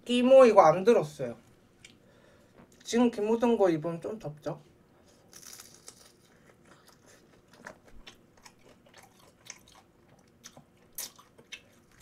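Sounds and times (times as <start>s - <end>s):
biting and chewing mouth sounds: 5.3s - 12.0s.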